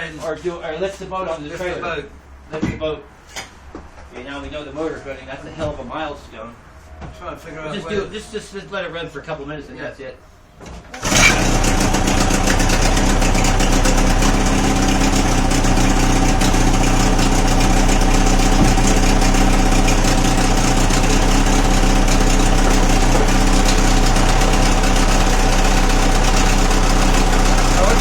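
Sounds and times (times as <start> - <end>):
outboard motor idling: 11.0 - 28.0.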